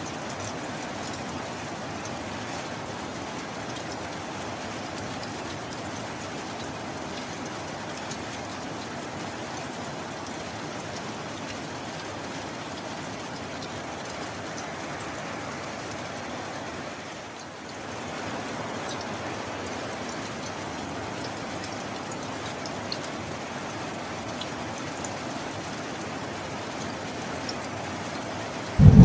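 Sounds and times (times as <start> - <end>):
heavy rain hissing: 28.8 - 29.0.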